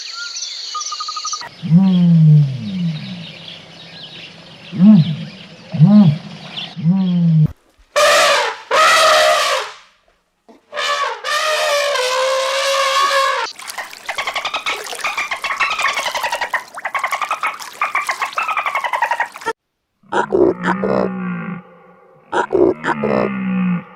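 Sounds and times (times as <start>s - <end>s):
animal calling loudly: 8.0s - 9.8s, 10.6s - 23.9s.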